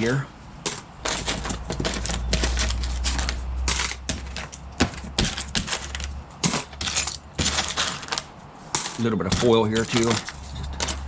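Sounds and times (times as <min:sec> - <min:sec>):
coins and metal clinking: 0:00.0 - 0:11.0.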